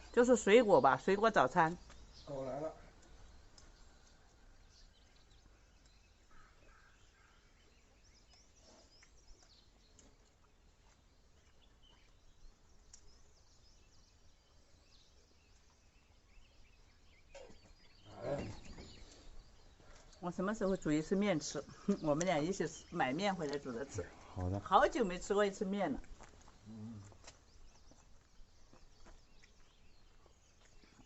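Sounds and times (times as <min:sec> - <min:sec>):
faint bird chirps: 0:11.3 - 0:23.1.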